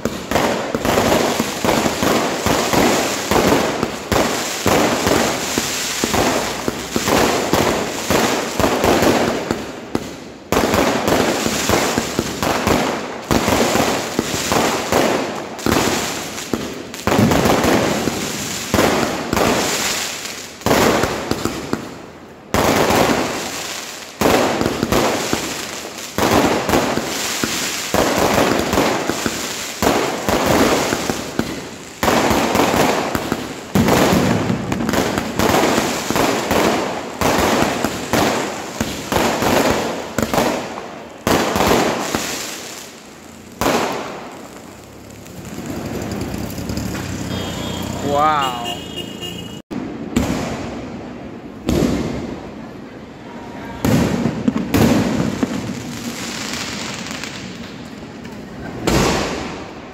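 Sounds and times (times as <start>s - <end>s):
fireworks bursts: 0.0s - 59.9s
fireworks crackling: 0.0s - 59.9s.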